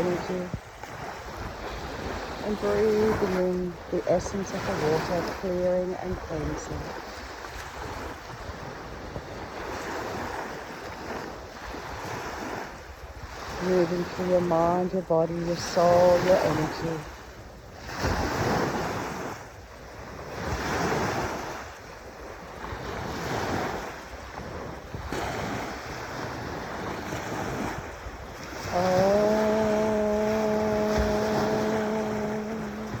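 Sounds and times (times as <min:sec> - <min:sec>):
ocean waves washing on beach: 0:00.0 - 0:33.0.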